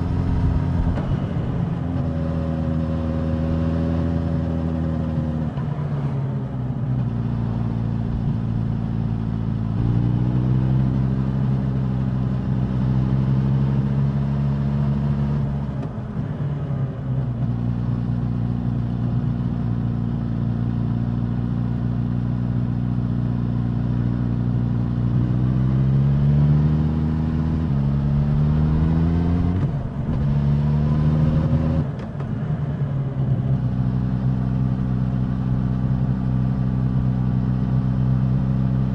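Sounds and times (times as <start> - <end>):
motorcycle engine revving: 25.0 - 31.9.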